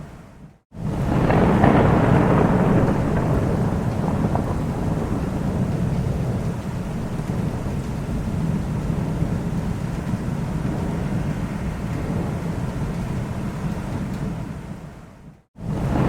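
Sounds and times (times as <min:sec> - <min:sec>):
thunder rumble: 0:00.4 - 0:16.0.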